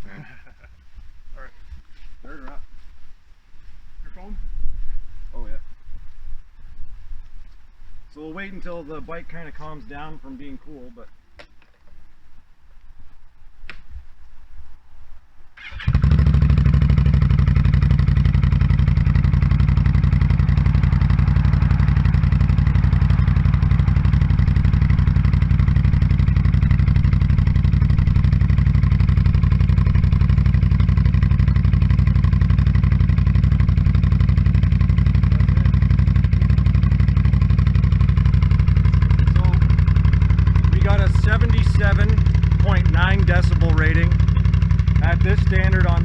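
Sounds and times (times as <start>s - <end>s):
engine idling: 15.6s - 46.0s.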